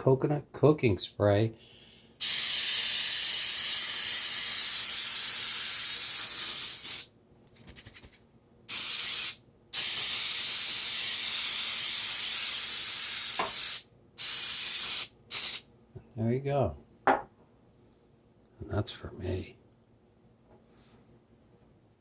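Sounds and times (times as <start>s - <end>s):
aerosol spray hissing: 2.2s - 7.1s, 8.7s - 15.6s.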